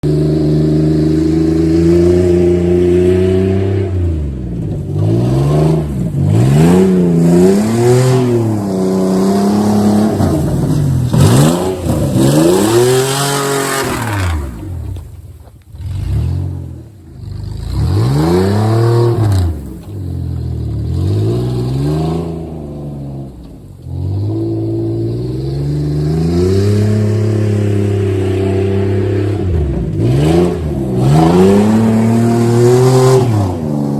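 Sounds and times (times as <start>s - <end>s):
vehicle engine revving: 0.0s - 33.9s.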